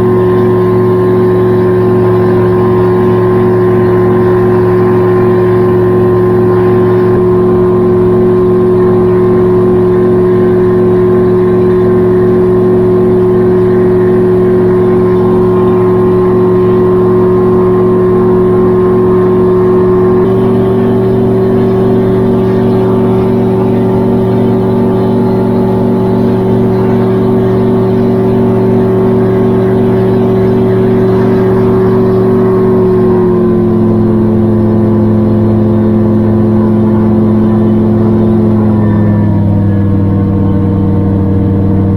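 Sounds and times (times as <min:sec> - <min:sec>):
gyrocopter engine and propeller: 0:00.0 - 0:41.9.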